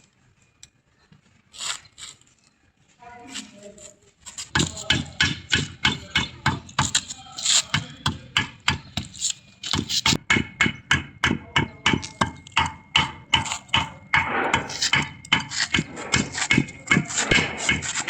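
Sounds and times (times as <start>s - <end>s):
hammer blows: 4.5s - 18.0s.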